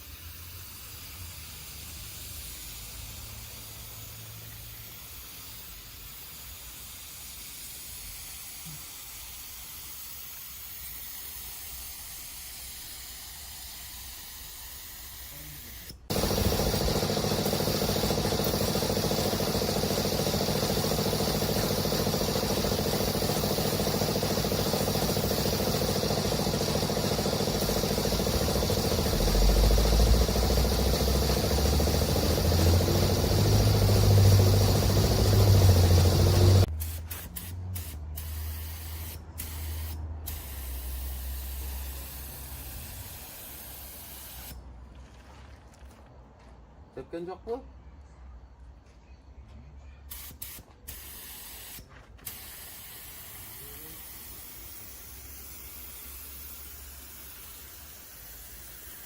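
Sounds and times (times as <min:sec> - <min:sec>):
compressed-air tool hissing: 0:00.0 - 0:44.6, 0:50.1 - 0:59.0
machine hum: 0:16.1 - 0:36.7.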